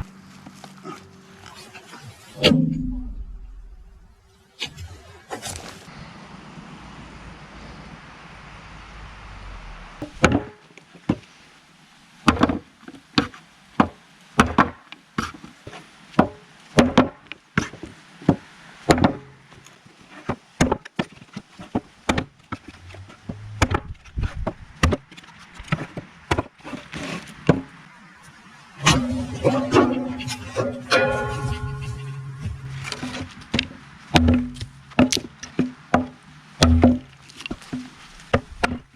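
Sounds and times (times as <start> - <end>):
tomahawk chopping wood: 34.2 - 35.3, 36.0 - 38.9.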